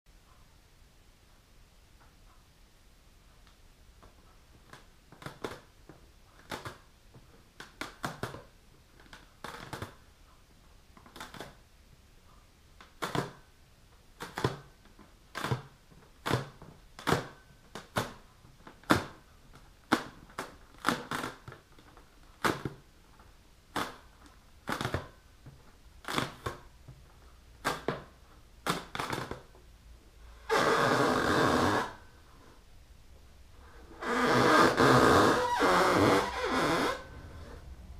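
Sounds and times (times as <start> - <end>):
fingernails scratching a balloon: 30.4 - 32.0, 33.9 - 37.6
rubbing on a balloon: 30.4 - 32.0, 33.9 - 37.6.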